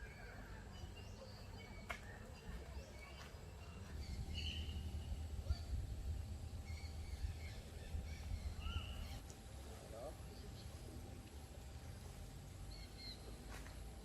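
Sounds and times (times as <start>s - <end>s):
low steady rumble: 3.6s - 14.0s
high bird calls: 6.5s - 9.2s.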